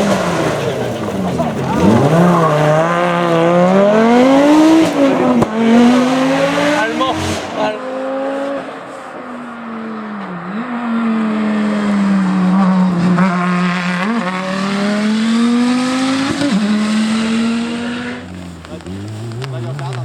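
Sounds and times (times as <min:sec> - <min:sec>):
engine throttle blips: 0:00.0 - 0:20.0
rally car engine running: 0:00.0 - 0:20.0.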